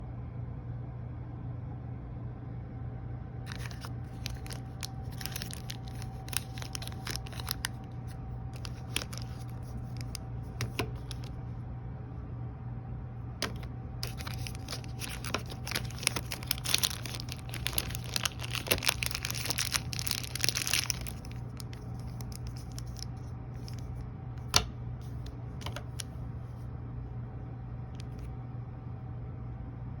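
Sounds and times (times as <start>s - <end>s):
steady low hum: 0.0s - 30.0s
candy wrappers crinkling: 3.5s - 11.4s, 13.4s - 26.1s.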